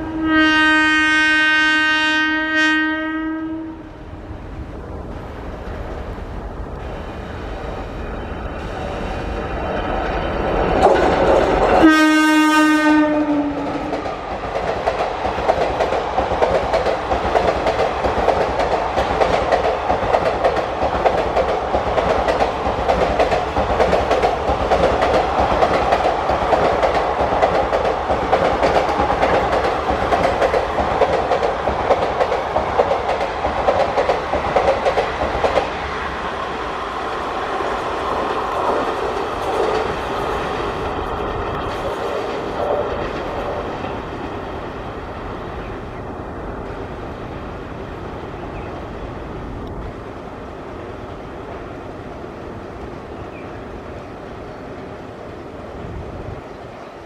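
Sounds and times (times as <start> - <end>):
train horn blast: 0.0 - 4.1, 11.8 - 14.0
train wheels clattering on rails: 6.8 - 12.4, 13.0 - 44.7.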